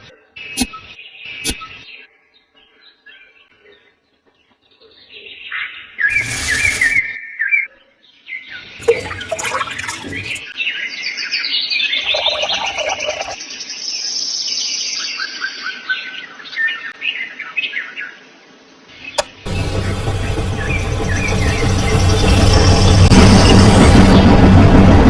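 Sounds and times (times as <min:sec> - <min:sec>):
rushing noise bursts: 0:06.1 - 0:07.0, 0:19.2 - 0:25.0.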